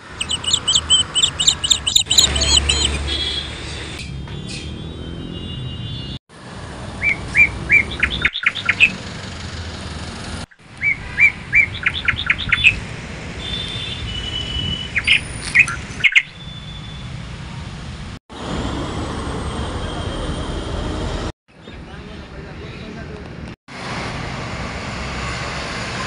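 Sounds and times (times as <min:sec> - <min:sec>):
birds chirping: 0:00.0 - 0:03.6, 0:07.0 - 0:09.1, 0:10.5 - 0:12.8, 0:13.4 - 0:17.1
bird whistles: 0:00.2 - 0:03.4, 0:07.0 - 0:08.9, 0:14.1 - 0:17.0.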